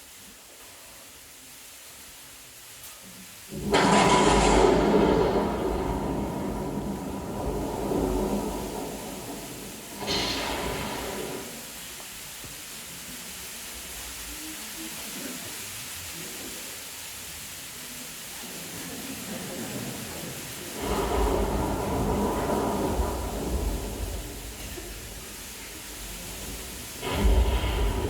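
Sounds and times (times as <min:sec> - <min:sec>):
choir imitating rainstorm: 0:17.7 - 0:28.0.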